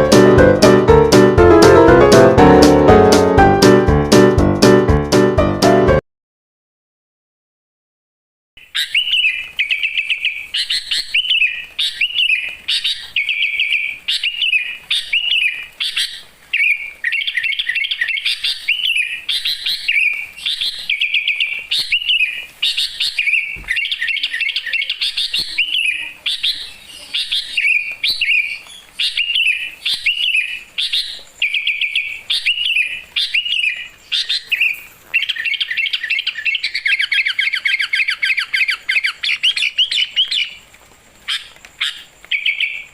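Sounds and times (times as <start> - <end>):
songbird chirping and trilling: 8.6 - 42.9.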